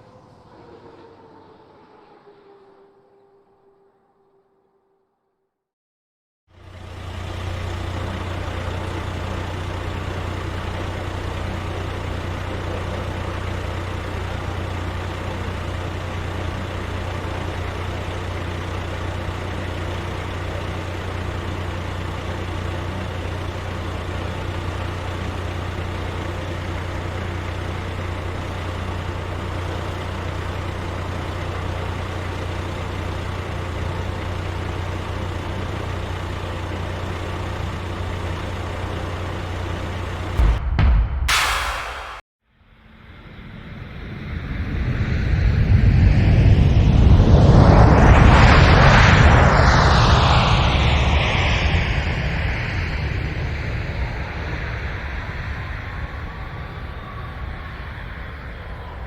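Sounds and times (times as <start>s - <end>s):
heavy truck engine running: 6.5s - 40.6s.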